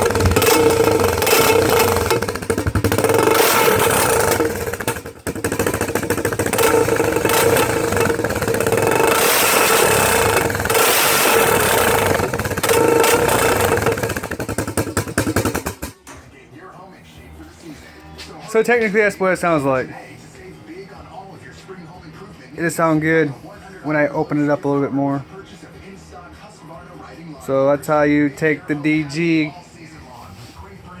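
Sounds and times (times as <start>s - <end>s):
loud atv engine revving: 0.0s - 16.0s.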